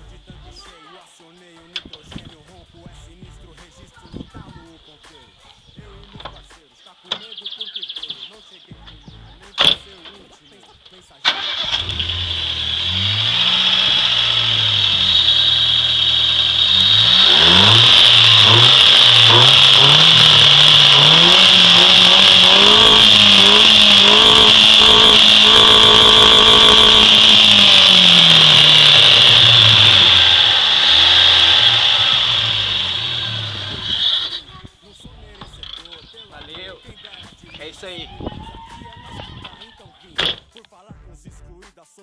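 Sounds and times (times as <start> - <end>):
car engine revving: 11.2 - 34.6.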